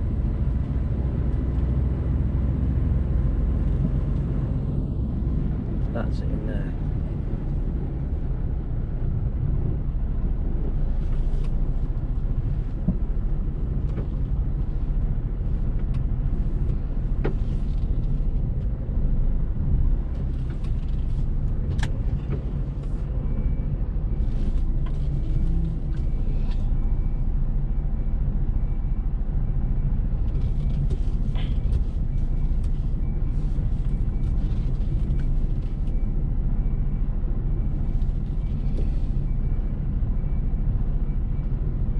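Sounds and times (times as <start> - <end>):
lorry engine rumbling: 0.0 - 41.9.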